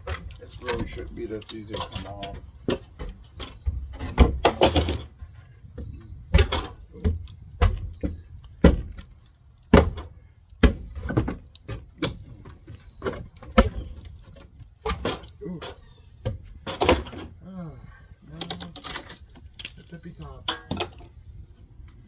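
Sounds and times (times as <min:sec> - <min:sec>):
wood knocking and cracking: 0:00.0 - 0:17.4.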